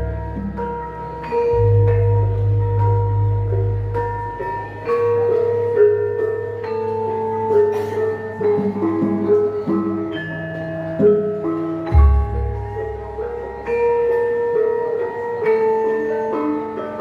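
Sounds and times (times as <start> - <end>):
gamelan ensemble playing: 0.0 - 17.0.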